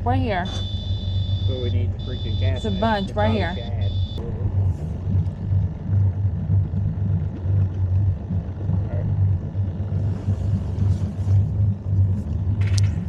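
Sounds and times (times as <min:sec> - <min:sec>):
outboard motor humming: 0:00.0 - 0:13.0.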